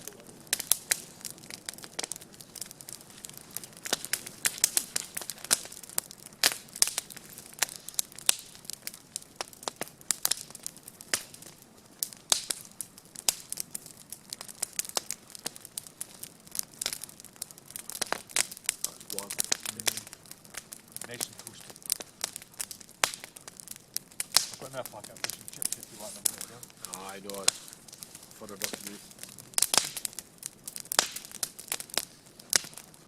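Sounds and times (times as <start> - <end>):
campfire crackling: 0.0 - 33.0.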